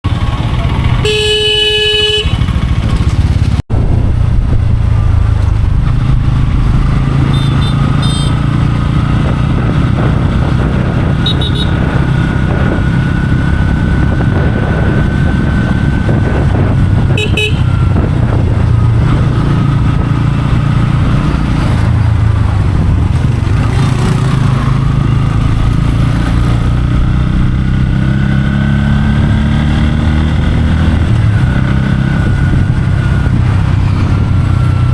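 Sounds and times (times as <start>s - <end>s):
motorcycle engine accelerating: 0.1s - 34.9s
loud horn: 1.0s - 2.6s, 7.2s - 8.6s, 11.1s - 12.0s, 17.0s - 18.0s
vehicle horns honking: 1.0s - 2.7s, 7.2s - 8.5s, 11.2s - 12.0s, 17.1s - 17.9s.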